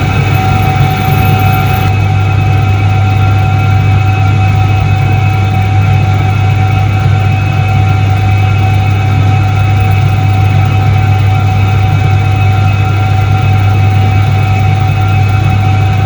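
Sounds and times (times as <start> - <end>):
washing machine motor hum: 0.0 - 3.0.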